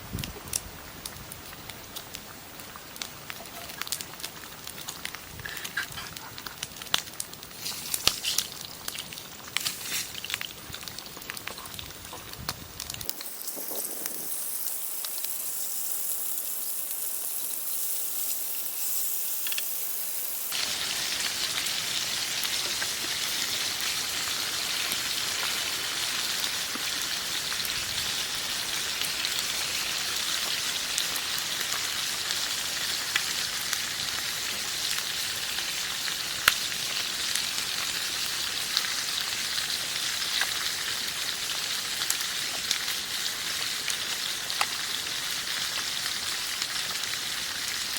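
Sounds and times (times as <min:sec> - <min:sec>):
hissing with ticks and crackles: 0:00.2 - 0:47.9.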